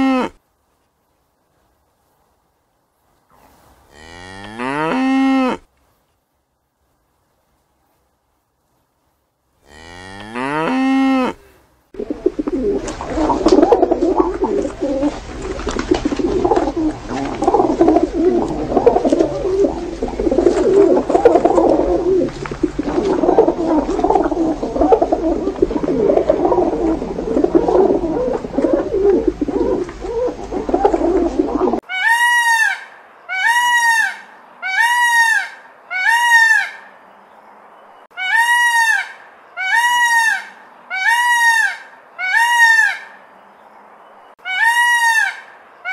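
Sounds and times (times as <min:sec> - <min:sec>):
pigeons cooing: 0:12.0 - 0:31.8
peafowl honking calls: 0:12.0 - 0:36.9, 0:38.1 - 0:43.2, 0:44.4 - 0:45.9.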